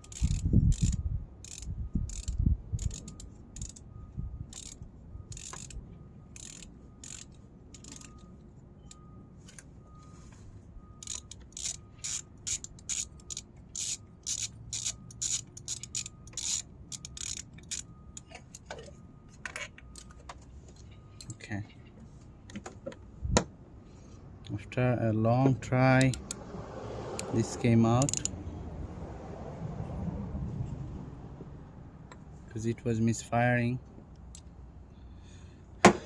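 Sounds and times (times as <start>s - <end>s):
socket ratchet clicking: 0.0s - 3.9s, 4.5s - 5.8s, 6.4s - 8.2s, 11.0s - 18.7s, 26.0s - 26.4s, 27.2s - 27.4s, 28.0s - 28.4s.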